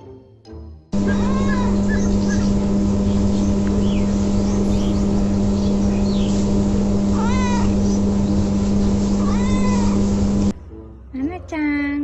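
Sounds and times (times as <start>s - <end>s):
low mechanical hum: 1.0s - 10.6s.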